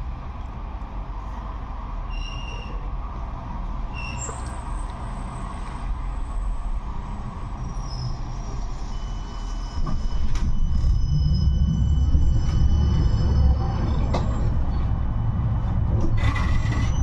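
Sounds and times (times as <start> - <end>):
tram wheels rumbling on rail: 0.0 - 17.0
faint squealing tones: 7.6 - 15.2, 16.0 - 17.0.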